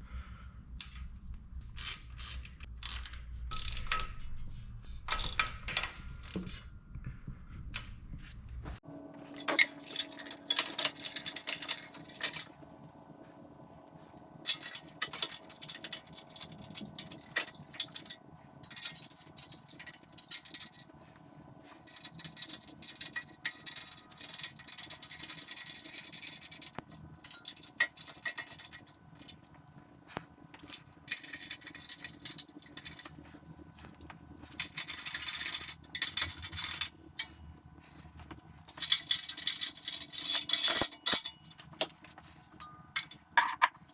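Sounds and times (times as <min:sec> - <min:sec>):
faint steady hum: 0:00.0 - 0:43.9
metallic clinks and rattles: 0:09.2 - 0:12.9, 0:13.8 - 0:43.9.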